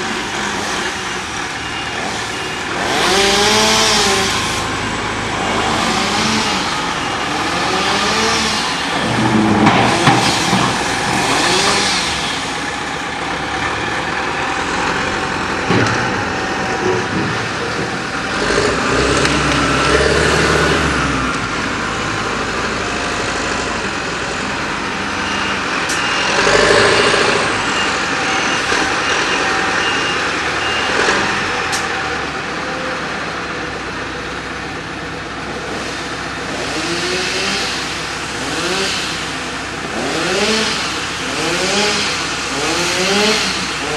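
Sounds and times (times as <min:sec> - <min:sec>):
diesel engines working: 0:00.0 - 0:43.9
reversing beeper: 0:00.1 - 0:13.6, 0:24.3 - 0:33.1.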